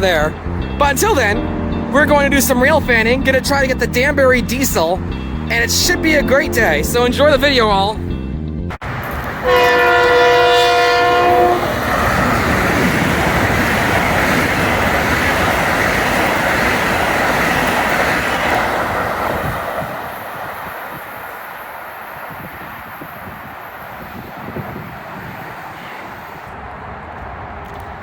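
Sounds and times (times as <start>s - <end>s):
train rushing past: 0.0s - 28.0s
train horn: 9.4s - 12.1s.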